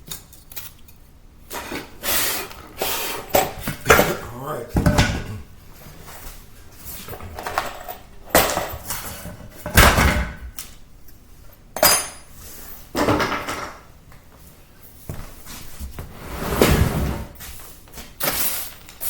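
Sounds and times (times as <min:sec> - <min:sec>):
tiles knocking and clattering: 0:07.1 - 0:10.5, 0:13.0 - 0:13.9.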